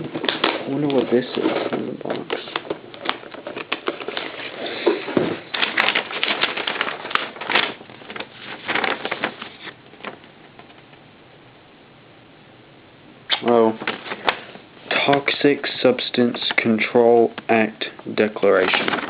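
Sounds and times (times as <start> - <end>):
rummaging in cardboard box: 0.0 - 9.7, 18.6 - 19.0
paper rustling: 0.0 - 10.8, 13.7 - 15.3, 18.3 - 19.0.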